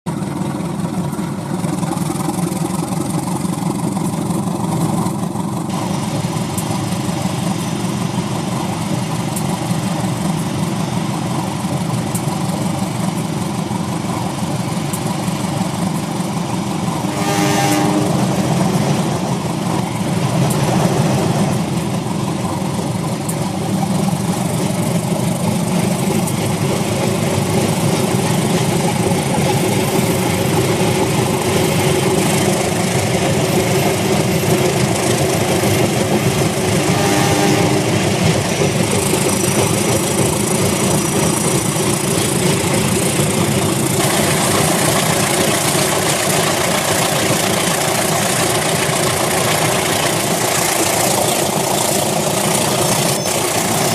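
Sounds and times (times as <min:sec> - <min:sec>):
model trains rumbling on track: 0:00.1 - 0:53.9.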